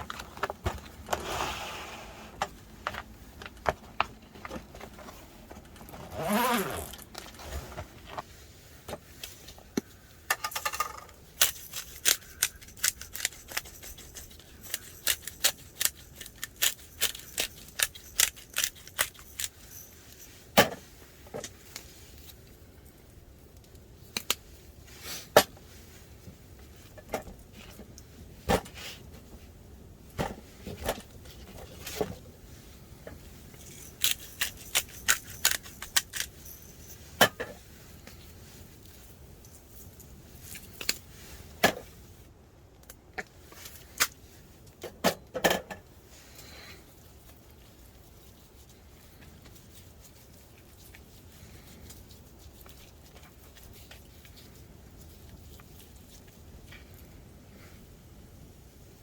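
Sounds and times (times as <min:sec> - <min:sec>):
low steady background noise: 0:00.0 - 0:59.0
small hard objects clinking: 0:11.4 - 0:20.2, 0:33.6 - 0:36.9.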